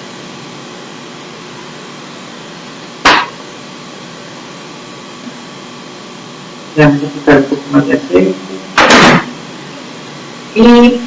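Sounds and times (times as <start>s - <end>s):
loud sharp knock: 3.0s - 3.4s, 8.8s - 9.3s.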